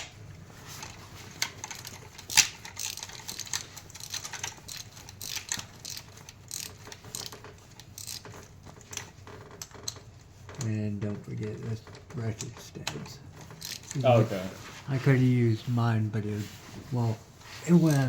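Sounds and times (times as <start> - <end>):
metal tools clicking and clinking: 0.8 - 10.0, 12.4 - 14.0.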